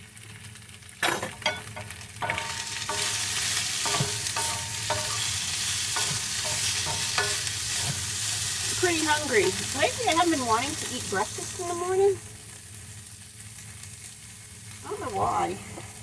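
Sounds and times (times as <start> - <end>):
vegetables sizzling in a pan: 0.0 - 16.0
stirring taps: 1.0 - 10.4
utensil knocking and clattering: 3.8 - 5.3.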